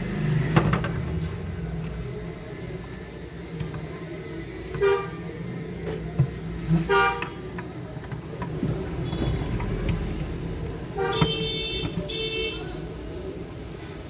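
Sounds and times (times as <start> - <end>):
low traffic rumble: 0.0 - 14.0
vehicle horn honking: 6.8 - 7.4, 9.0 - 9.6, 11.0 - 12.8.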